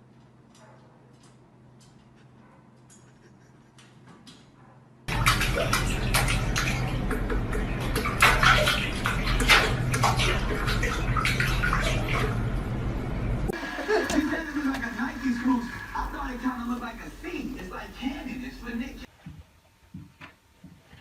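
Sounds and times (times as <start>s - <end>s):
water splashing and sloshing: 5.1s - 12.8s, 13.5s - 19.1s.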